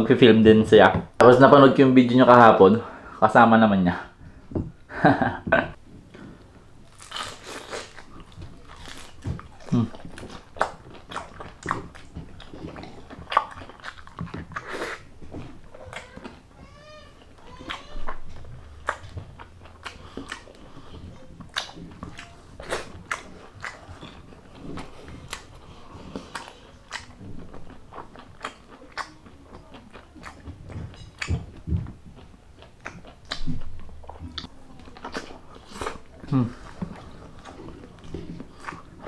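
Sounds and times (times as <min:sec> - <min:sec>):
person chewing food: 0:06.1 - 0:39.0
mouth clicks and smacks: 0:17.5 - 0:38.9.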